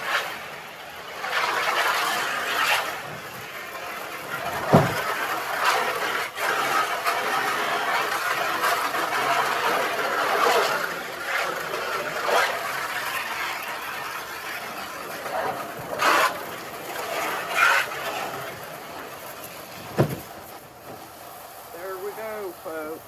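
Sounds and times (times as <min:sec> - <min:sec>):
thump: 0:04.5 - 0:05.1, 0:19.8 - 0:21.0.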